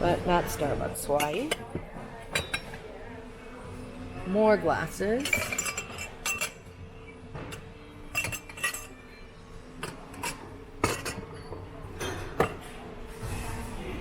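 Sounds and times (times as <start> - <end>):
glasses and dishes clinking: 1.1 - 2.9, 5.1 - 12.8.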